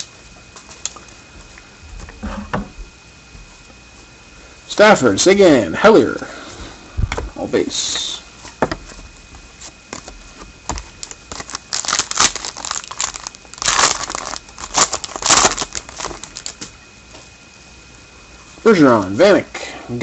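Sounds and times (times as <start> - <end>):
wrapper tearing and crinkling: 10.7 - 16.6.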